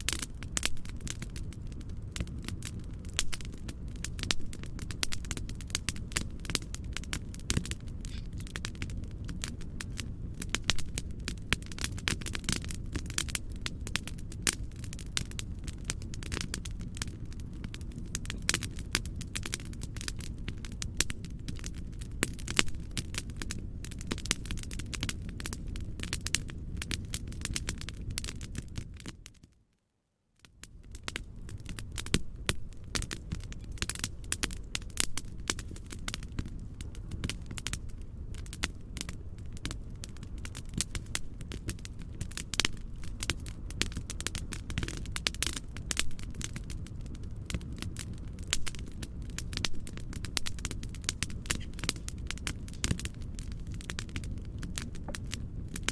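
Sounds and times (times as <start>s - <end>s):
fire crackling in fireplace: 0.0s - 55.9s.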